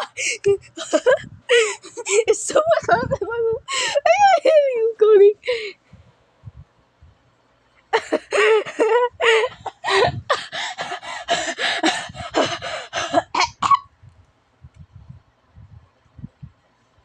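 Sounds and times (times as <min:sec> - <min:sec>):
person laughing hard: 0:08.0 - 0:13.4.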